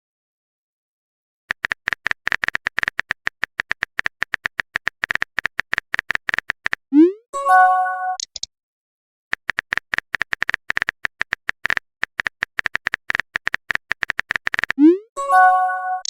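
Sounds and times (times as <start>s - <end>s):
virtual keyboard typing clicks: 1.5s - 6.9s, 8.2s - 8.5s, 9.3s - 14.9s
phone notification chime: 7.4s - 8.2s, 15.2s - 16.0s.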